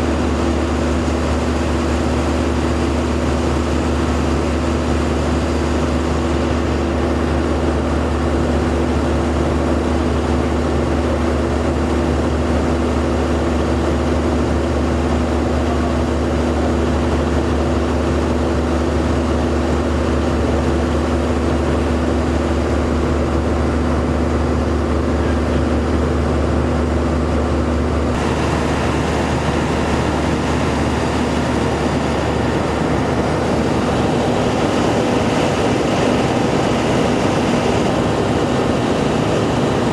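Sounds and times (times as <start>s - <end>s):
vehicle engine humming: 22.0s - 39.9s.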